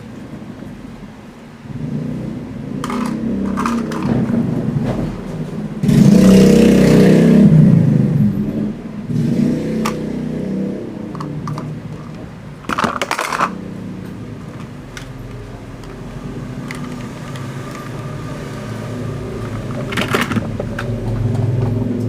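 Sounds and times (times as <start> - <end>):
toy vehicle whirring: 2.8 - 4.4, 11.2 - 13.7, 14.4 - 21.4
clicks: 16.6 - 18.2.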